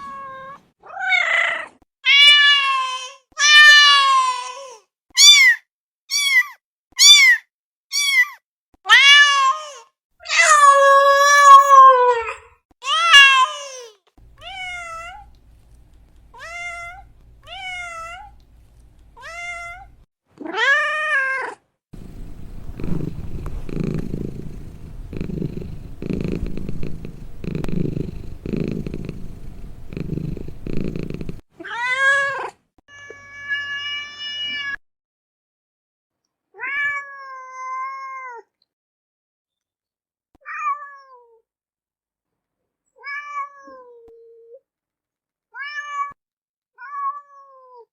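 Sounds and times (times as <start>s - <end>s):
low uneven rumbling: 22.0s - 31.4s.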